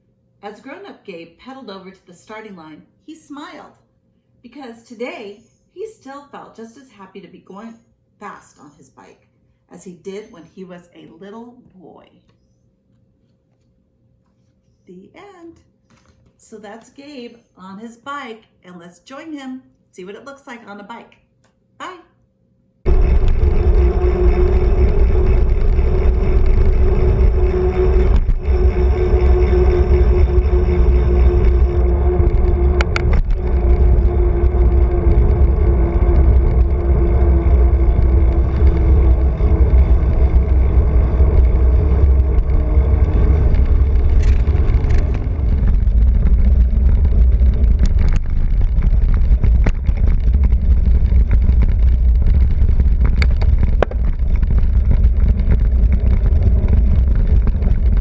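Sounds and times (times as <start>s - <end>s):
motor-like hum: 22.8s - 58.0s
wind rumble on microphone: 22.9s - 58.0s.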